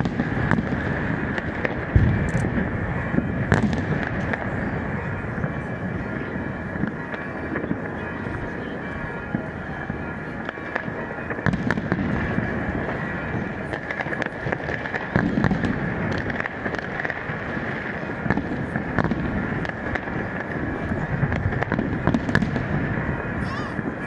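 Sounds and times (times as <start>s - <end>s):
fireworks bursting and crackling: 0.0s - 24.0s.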